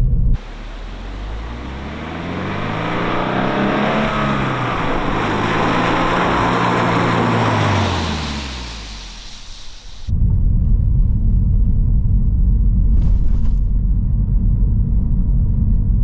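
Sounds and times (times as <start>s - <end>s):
car engine driving by: 0.4s - 10.1s.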